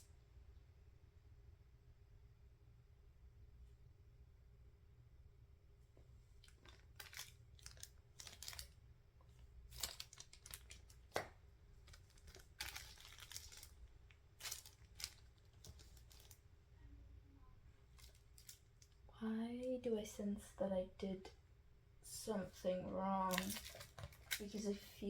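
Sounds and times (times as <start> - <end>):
packaging rustling and crinkling: 6.4 - 8.8, 9.6 - 16.4, 17.9 - 19.0, 23.2 - 24.8.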